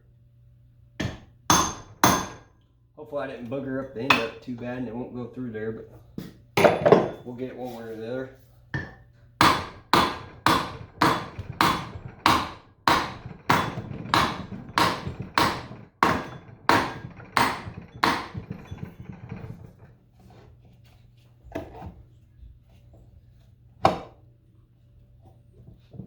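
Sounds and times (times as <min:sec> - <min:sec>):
hammer striking metal: 0:01.0 - 0:02.4, 0:08.8 - 0:19.3.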